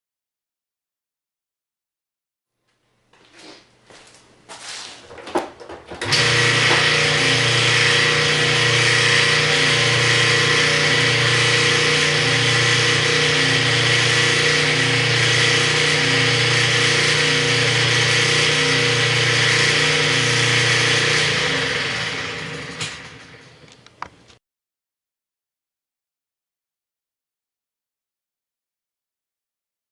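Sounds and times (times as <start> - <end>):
washing machine pulsing grinding: 5.0 - 23.6.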